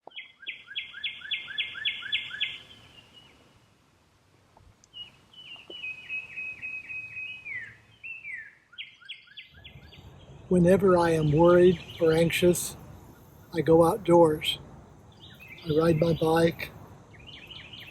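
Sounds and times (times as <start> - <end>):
songbird singing: 0.0 - 3.8, 4.6 - 17.9.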